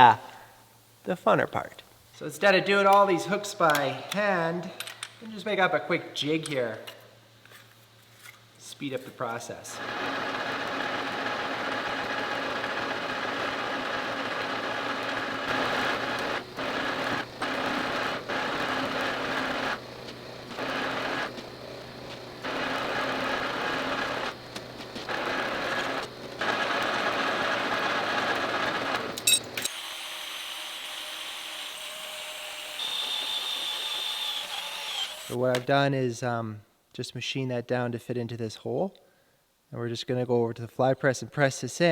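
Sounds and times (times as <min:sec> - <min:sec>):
faint background hum: 0:00.0 - 0:09.8
metal lathe running: 0:09.8 - 0:35.4.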